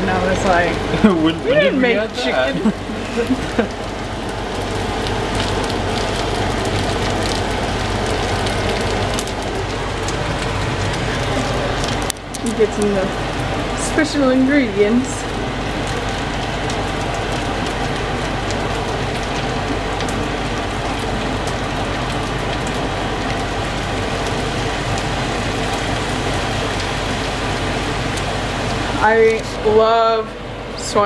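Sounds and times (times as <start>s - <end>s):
food sizzling in a pan: 23.1s - 29.8s.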